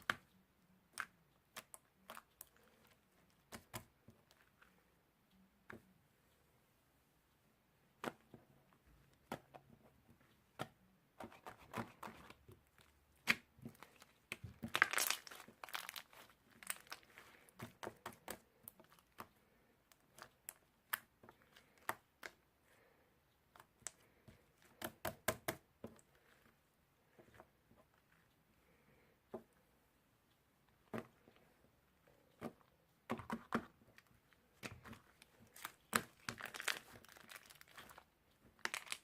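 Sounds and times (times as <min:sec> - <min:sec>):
crinkling and tearing: 0:13.3 - 0:18.1, 0:33.9 - 0:39.0.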